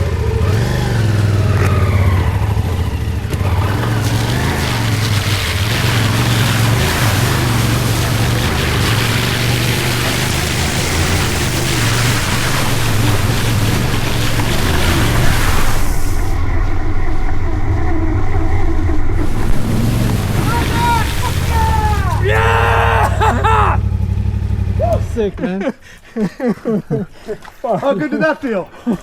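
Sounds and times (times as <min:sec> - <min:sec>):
motorcycle engine running: 0:00.0 - 0:25.4
water rushing and splashing: 0:00.6 - 0:16.6, 0:19.2 - 0:25.4.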